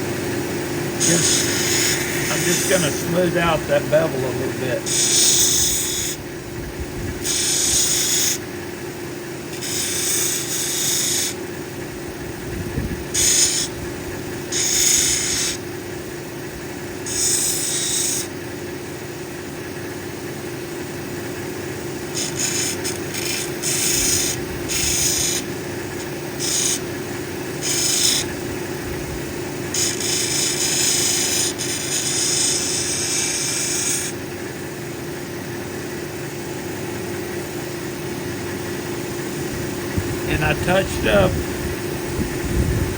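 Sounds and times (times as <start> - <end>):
motor humming: 0.0 - 42.9
stone grinding on wheel: 1.0 - 6.2, 7.2 - 8.4, 9.5 - 11.4, 13.1 - 13.7, 14.5 - 15.6, 17.0 - 18.3, 22.1 - 26.9, 27.6 - 28.3, 29.7 - 34.2.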